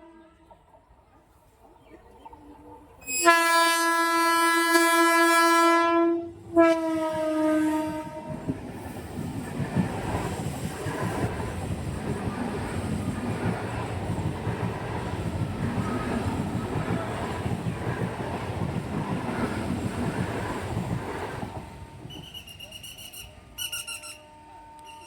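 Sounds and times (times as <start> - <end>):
train wheels rumbling on track: 6.4 - 24.2.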